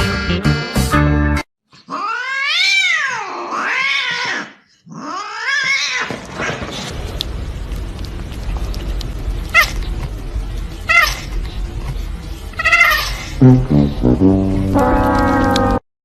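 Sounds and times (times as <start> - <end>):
cat yowling: 1.9 - 6.1, 12.6 - 13.2.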